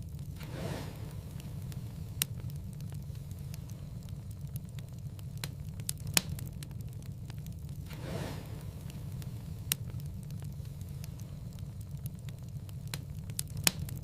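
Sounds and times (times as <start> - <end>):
fireplace fire crackling: 0.0 - 14.0.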